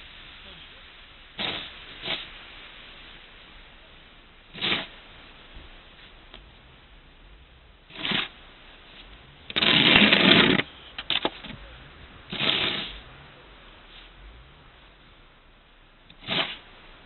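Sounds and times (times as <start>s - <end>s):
snow being scraped: 1.4s - 2.5s, 4.5s - 5.0s, 7.9s - 10.7s, 12.3s - 13.1s, 16.1s - 16.8s.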